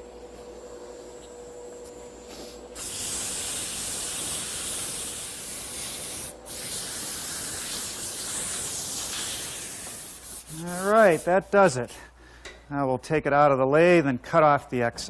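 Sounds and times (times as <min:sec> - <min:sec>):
sandpaper hissing on lathe wood: 0:02.4 - 0:11.9.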